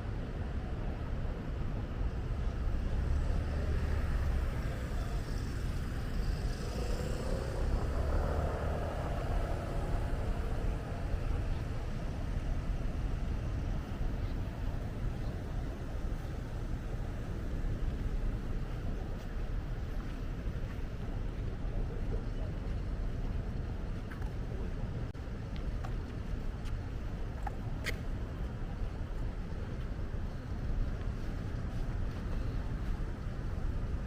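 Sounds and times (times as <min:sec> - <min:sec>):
road traffic rumble: 0:00.0 - 0:34.0
vehicle passing loudly: 0:06.4 - 0:11.5.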